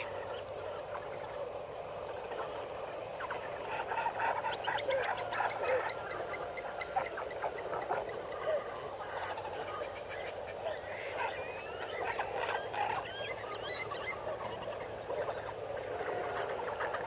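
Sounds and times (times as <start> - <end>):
frogs calling: 0.0 - 17.0
birds calling: 3.3 - 8.4
whistled bird calls: 11.2 - 15.3.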